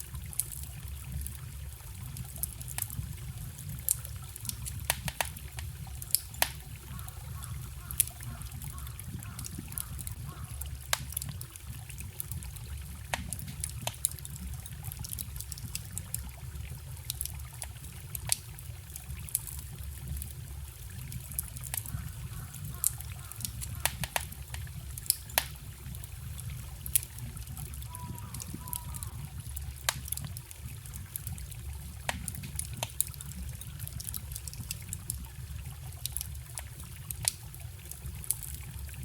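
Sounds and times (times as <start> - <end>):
campfire crackling and popping: 0.0 - 39.0.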